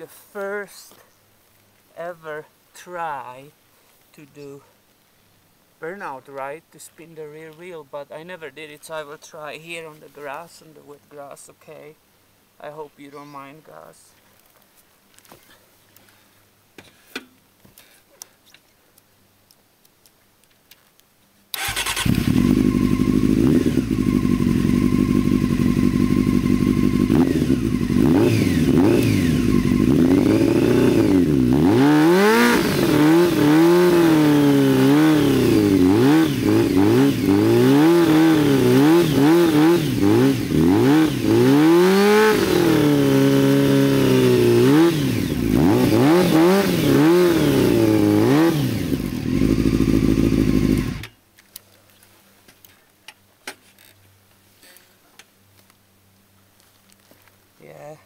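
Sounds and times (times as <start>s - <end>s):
motorcycle engine revving: 21.6s - 51.1s.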